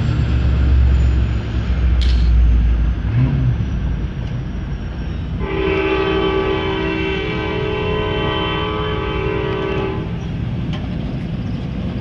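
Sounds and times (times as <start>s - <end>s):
low rumble of train: 0.0s - 12.0s
train horn: 5.4s - 10.2s.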